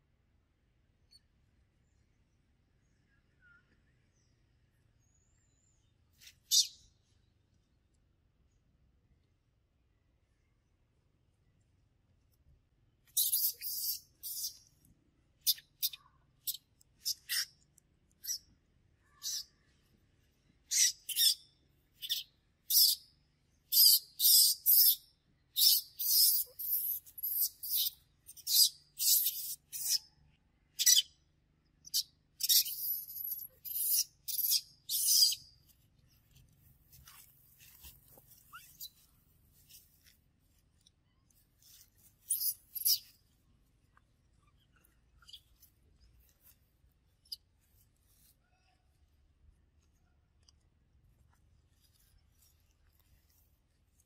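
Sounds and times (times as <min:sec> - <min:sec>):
bird chirping: 0:01.1 - 0:07.4, 0:13.1 - 0:19.9, 0:20.6 - 0:36.4, 0:37.0 - 0:39.9, 0:40.8 - 0:46.6.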